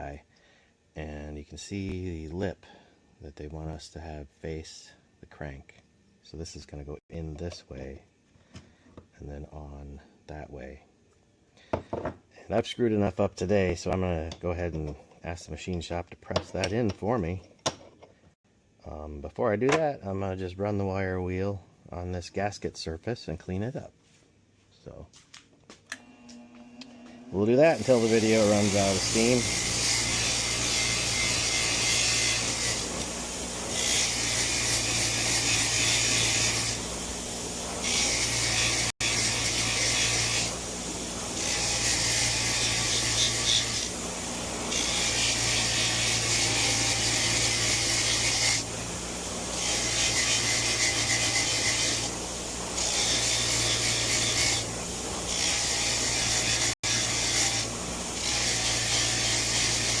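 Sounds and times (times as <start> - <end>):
wire wheel scrubbing metal: 27.3 - 60.0.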